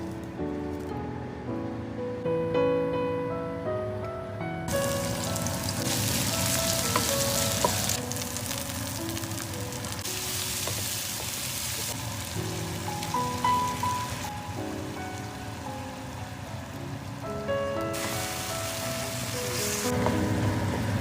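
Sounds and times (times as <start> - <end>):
background music: 0.0 - 11.4, 12.2 - 21.0
food sizzling in a hot pan: 4.7 - 21.0.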